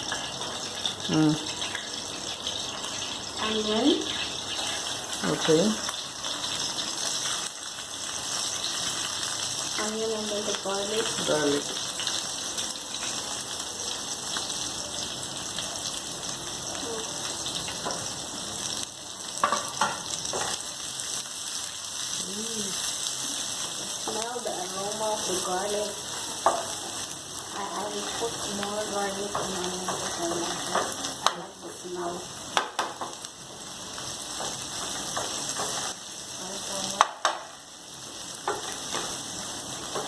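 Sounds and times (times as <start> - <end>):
onion sizzling in oil: 0.0 - 40.0.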